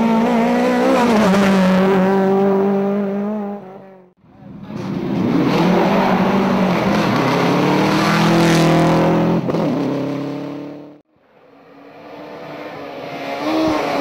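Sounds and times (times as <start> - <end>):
rally car engine accelerating: 4.7 - 11.0.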